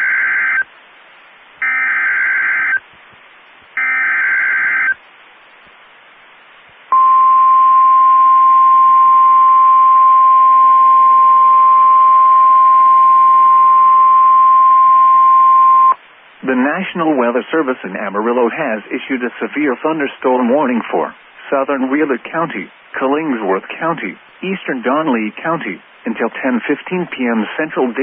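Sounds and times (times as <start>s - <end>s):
steady single-pitch alarm tone: 1.6s - 2.8s, 3.8s - 5.0s
faint hiss: 4.9s - 8.3s, 15.9s - 28.0s.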